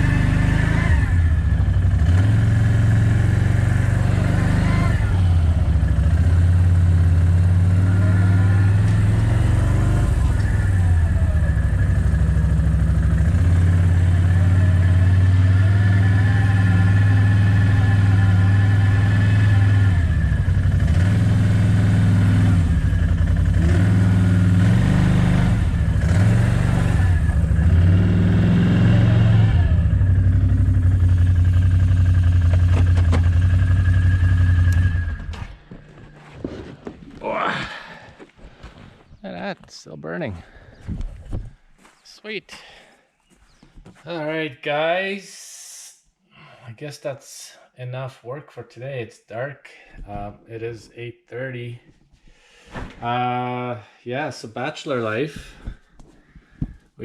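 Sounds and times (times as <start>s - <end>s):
small petrol engine running: 0.0s - 36.2s.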